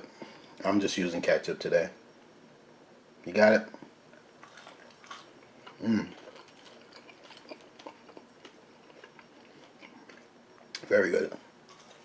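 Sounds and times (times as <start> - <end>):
faint chewing: 3.7 - 12.0.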